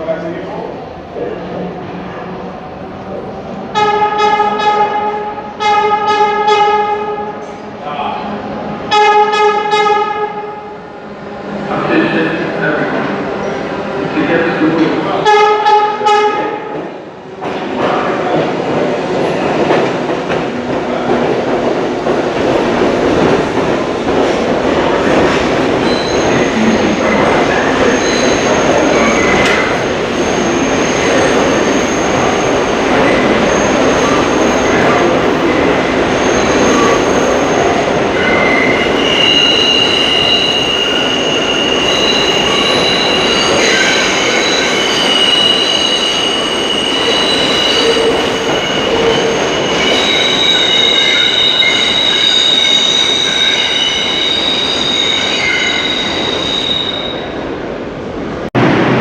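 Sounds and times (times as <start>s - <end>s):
train wheels rumbling on rails: 16.0s - 59.0s
high-pitched wheel squeal: 38.2s - 57.3s.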